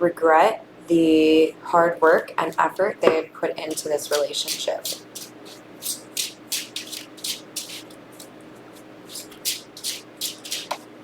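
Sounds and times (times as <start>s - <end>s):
cards being shuffled by hand: 3.7s - 10.9s.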